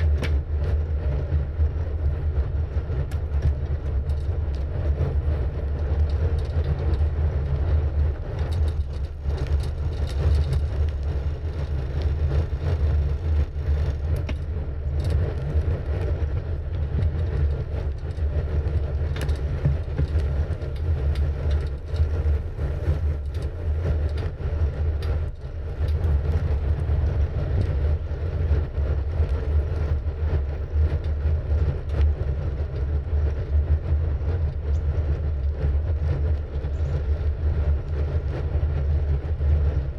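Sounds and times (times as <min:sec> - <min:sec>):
bicycle tyre rumble: 0:00.0 - 0:39.9
wind buffeting microphone: 0:00.0 - 0:39.9.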